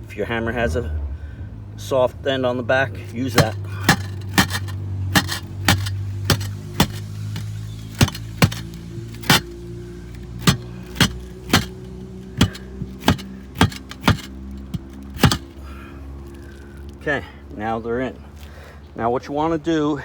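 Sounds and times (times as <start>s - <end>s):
mallet tapping roof tile: 3.3s - 9.6s, 10.2s - 15.5s.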